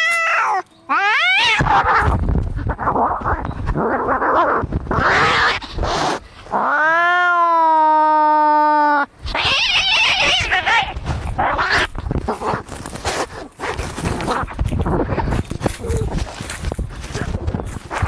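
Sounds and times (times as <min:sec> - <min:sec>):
cat yowling: 0:00.0 - 0:06.0, 0:06.6 - 0:11.9
cats screeching: 0:00.0 - 0:12.6.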